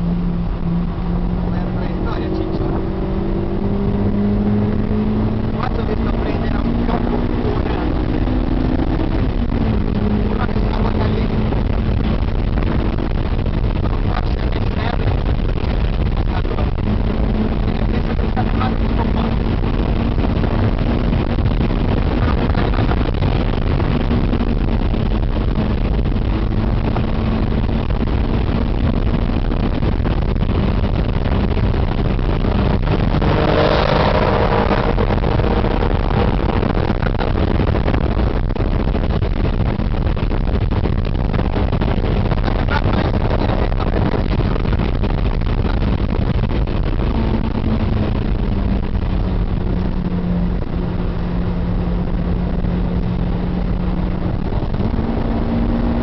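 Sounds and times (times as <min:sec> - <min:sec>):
passing car engine: 0:00.0 - 0:13.1, 0:32.5 - 0:36.8
car engine under load: 0:00.0 - 0:56.0
road and wind noise: 0:00.0 - 0:56.0.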